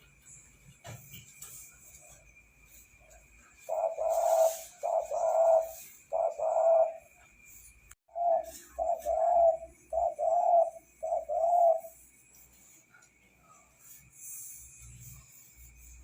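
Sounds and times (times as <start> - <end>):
dove cooing: 3.6 - 7.1, 8.1 - 12.0.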